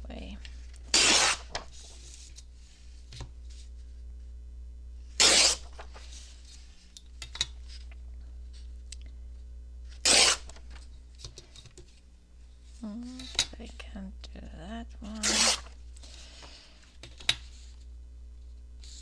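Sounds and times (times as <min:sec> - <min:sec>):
paper tearing: 0:00.9 - 0:02.0, 0:05.2 - 0:06.2, 0:09.9 - 0:10.8, 0:15.1 - 0:15.8.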